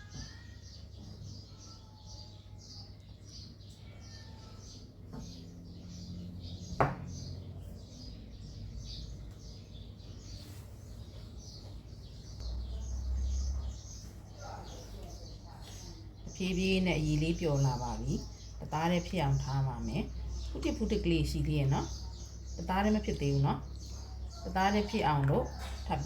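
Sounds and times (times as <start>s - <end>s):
small birds chirping: 0.0s - 26.0s
sharp knock: 6.8s - 7.1s.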